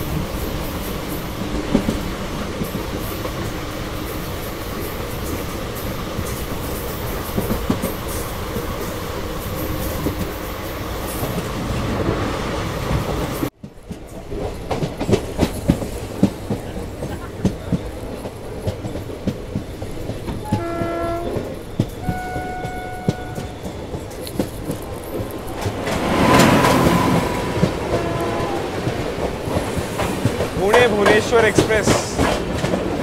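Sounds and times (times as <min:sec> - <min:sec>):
train wheel and wind rush: 0:00.0 - 0:33.0
wheels clicking over rail joints: 0:12.9 - 0:33.0
train horn: 0:20.4 - 0:23.7, 0:26.0 - 0:29.1.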